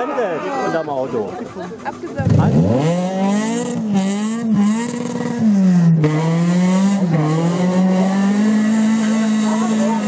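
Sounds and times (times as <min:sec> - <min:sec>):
rally car engine at high revs: 0:01.3 - 0:10.0.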